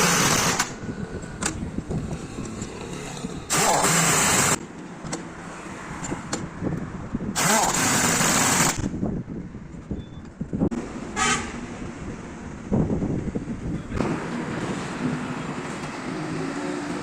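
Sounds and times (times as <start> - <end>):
loud bursts of hissing: 0.0 - 0.7, 3.5 - 4.6, 7.4 - 8.8.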